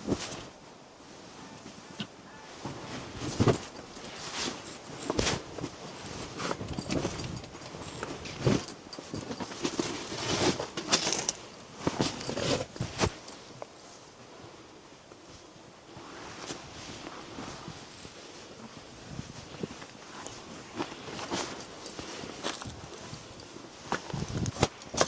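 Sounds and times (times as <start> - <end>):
objects being handled: 2.6 - 13.6.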